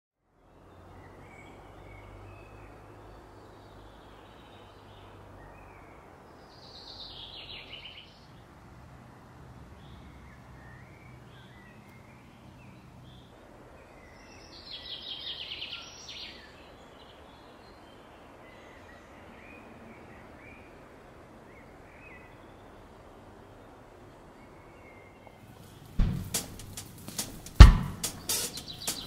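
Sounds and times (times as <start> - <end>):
songbird chirps: 0.3 - 29.0
rapid trilling birdsong: 24.7 - 29.0.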